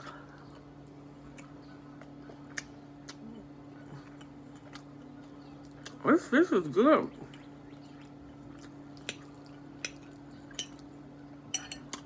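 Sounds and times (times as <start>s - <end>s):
low steady hum: 0.0s - 12.0s
closed-mouth chewing: 0.2s - 6.0s, 7.1s - 10.9s.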